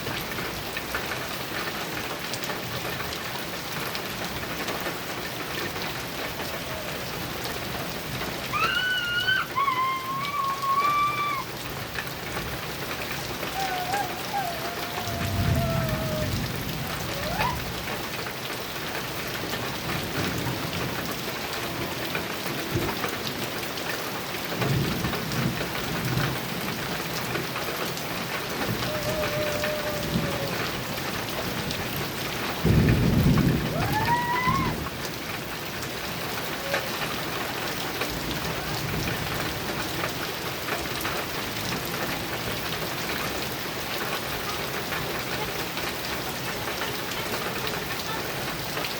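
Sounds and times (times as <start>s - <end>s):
heavy rain on a metal roof: 0.0s - 48.9s
thunder rolling: 12.3s - 18.0s, 28.5s - 35.0s.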